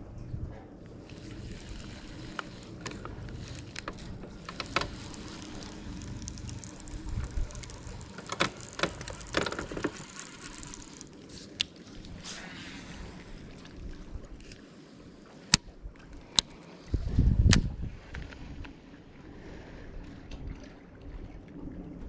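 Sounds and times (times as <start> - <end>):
low wind: 0.0 - 22.0
water around boat: 0.0 - 22.0
sharp clicks and knocks: 1.1 - 11.7.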